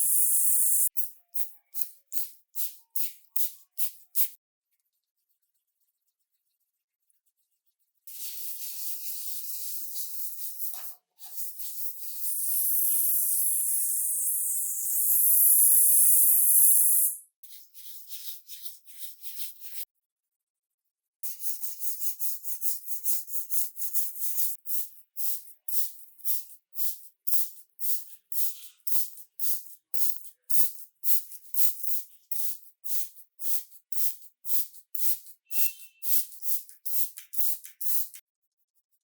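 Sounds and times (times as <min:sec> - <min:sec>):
rubbing strokes on small part: 0:00.0 - 0:00.9, 0:11.2 - 0:19.8.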